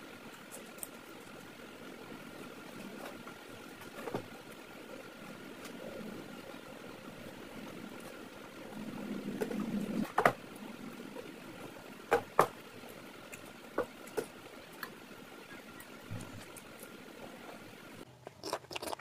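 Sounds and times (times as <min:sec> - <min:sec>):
faint steady hum: 0:00.0 - 0:19.0
soft wet chewing: 0:18.3 - 0:19.0.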